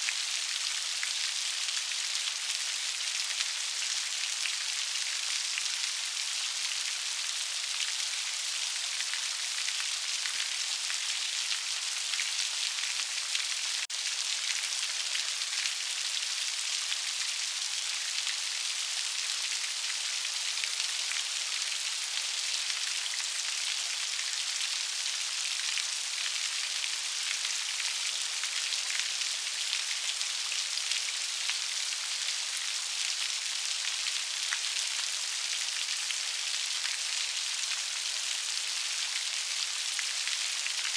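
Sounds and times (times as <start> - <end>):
steady rain pattering: 0.0 - 40.9.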